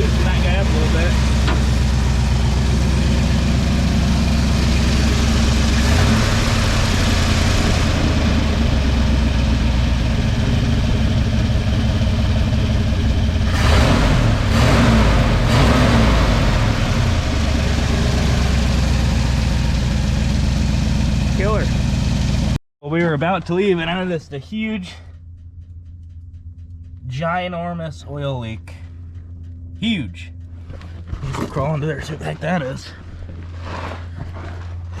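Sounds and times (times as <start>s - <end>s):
truck engine idling: 0.0s - 35.0s.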